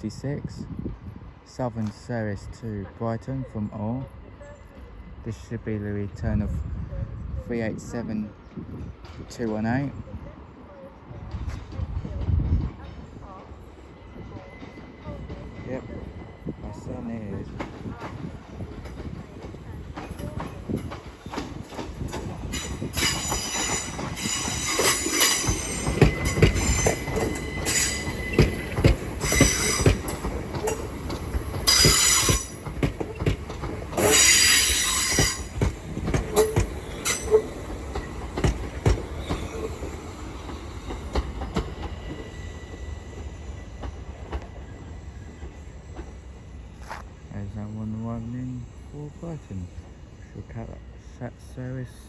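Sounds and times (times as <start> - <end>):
train wheels squealing: 9.8 - 50.9
wheels clicking over rail joints: 17.4 - 47.2.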